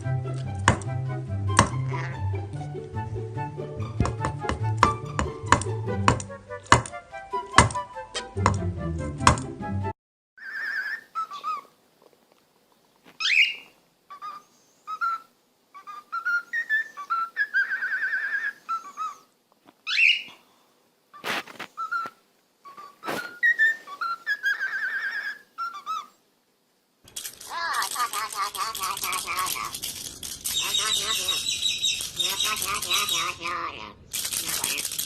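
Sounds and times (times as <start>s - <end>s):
parrot whistling: 13.2s - 19.3s, 21.8s - 26.1s, 30.5s - 33.7s
sharp clicks: 27.0s - 33.2s, 34.1s - 35.0s.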